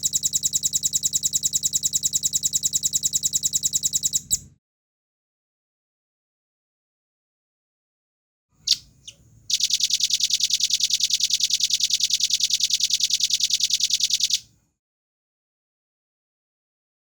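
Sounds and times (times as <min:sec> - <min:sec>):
bird calling with fast trill: 0:08.6 - 0:14.4.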